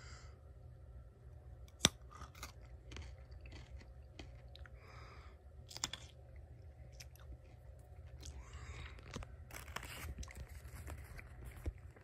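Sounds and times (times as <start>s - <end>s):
chewing and crunching lollipop: 1.7s - 4.8s, 5.6s - 12.0s.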